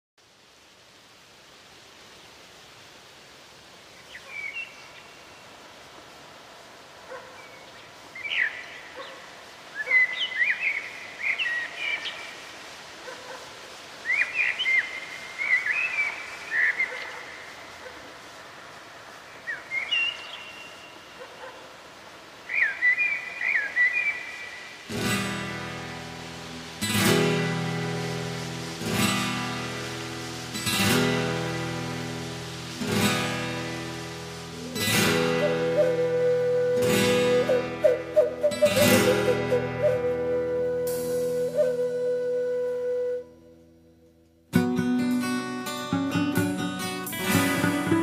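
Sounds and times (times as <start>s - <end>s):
faint rushing noise: 0.2s - 48.0s
birds chirping: 19.3s - 21.7s
acoustic guitar chords strummed: 44.5s - 48.0s.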